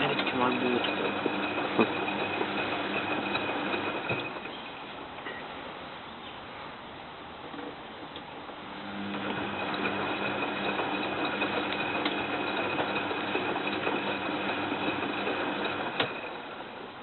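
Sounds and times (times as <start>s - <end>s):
washing machine motor humming: 0.0s - 5.1s, 7.5s - 17.0s.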